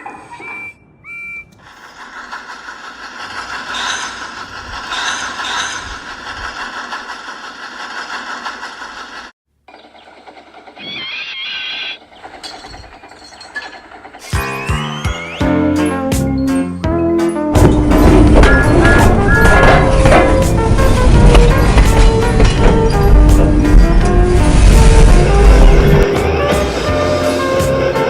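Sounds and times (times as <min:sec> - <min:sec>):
high whistle-like tones: 0:00.2 - 0:01.6, 0:14.2 - 0:15.8
model train clattering on track: 0:01.6 - 0:10.9, 0:12.0 - 0:14.4, 0:17.6 - 0:24.4.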